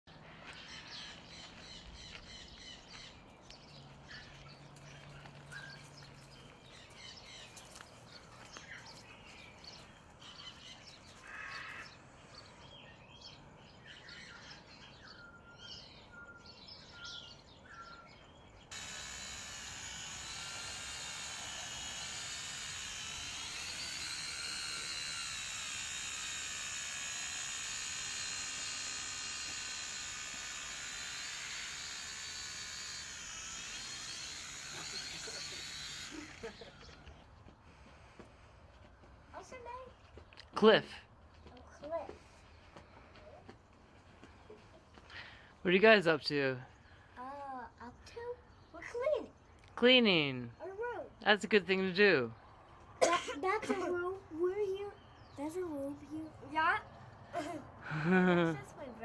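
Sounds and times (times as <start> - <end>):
small birds chirping: 0.1 - 59.0
drone propeller whine: 18.7 - 38.5.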